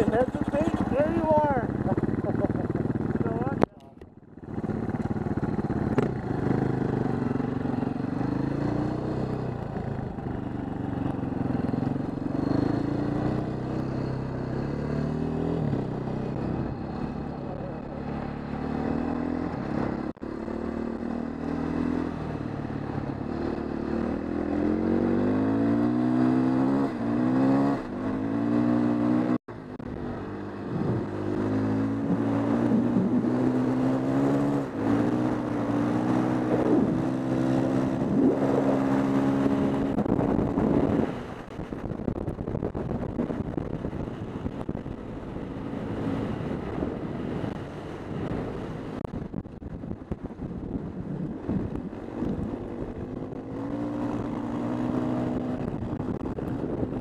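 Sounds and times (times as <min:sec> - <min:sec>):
dirt bike engine revving: 0:18.0 - 0:29.4, 0:30.7 - 0:41.2.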